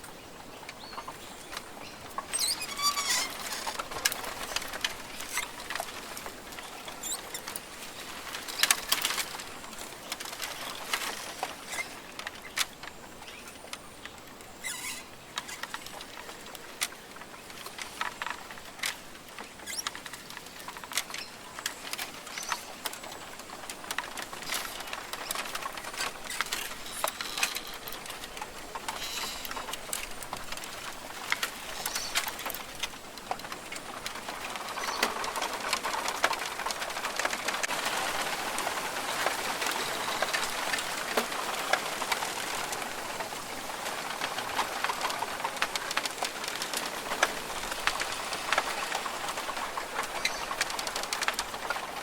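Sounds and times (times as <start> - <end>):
sharp ticks and patter: 0.0 - 52.0
bird calls: 0.2 - 7.6, 14.6 - 16.4, 26.2 - 29.8.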